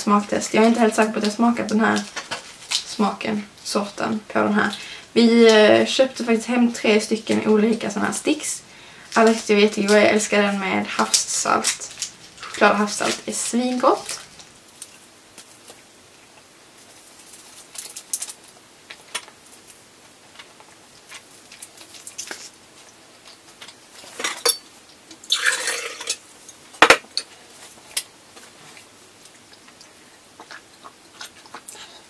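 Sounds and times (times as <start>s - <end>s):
chewing and mouth noises: 28.8s - 32.0s.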